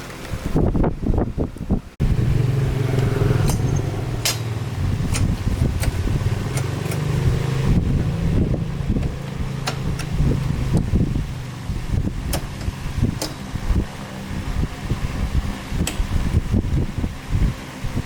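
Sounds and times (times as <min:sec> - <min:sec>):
sharp clicks: 0:05.1 - 0:07.1, 0:09.0 - 0:10.9.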